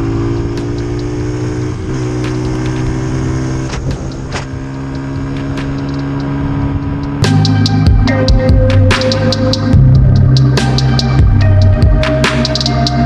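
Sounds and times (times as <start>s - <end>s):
dirt bike engine running: 0.0s - 12.4s
sharp ticks: 0.5s - 1.2s, 2.2s - 3.0s, 3.7s - 11.2s.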